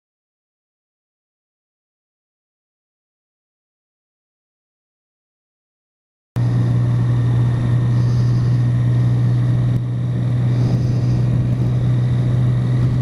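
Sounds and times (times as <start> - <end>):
motorcycle engine droning: 6.4 - 13.0.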